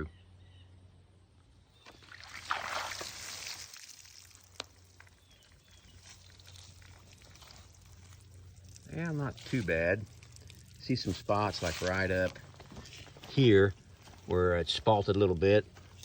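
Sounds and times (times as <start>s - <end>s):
water pouring on wood: 1.8s - 13.4s.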